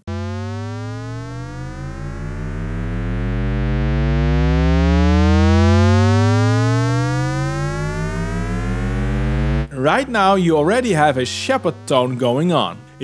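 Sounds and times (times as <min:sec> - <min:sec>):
synthesizer tone rising endlessly: 0:00.1 - 0:13.0.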